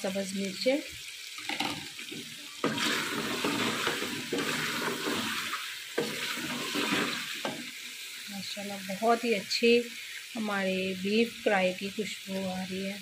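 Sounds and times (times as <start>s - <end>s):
gravy sizzling in a pot: 0.0s - 13.0s
spatula stirring and scraping: 1.6s - 7.9s.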